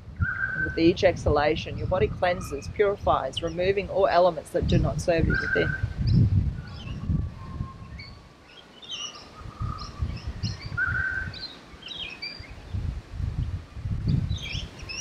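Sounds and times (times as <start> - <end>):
birds chirping: 0.2 - 12.8, 14.2 - 15.0
low rumble: 4.7 - 8.3.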